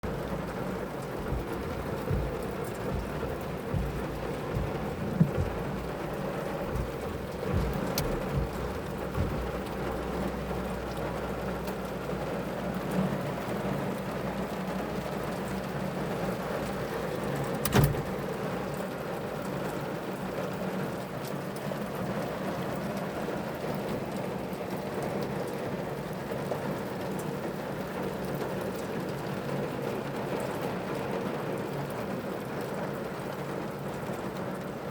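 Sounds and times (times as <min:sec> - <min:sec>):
low rumble: 0:00.0 - 0:11.0
rain falling: 0:00.0 - 0:34.9
sharp knock: 0:01.2 - 0:09.8.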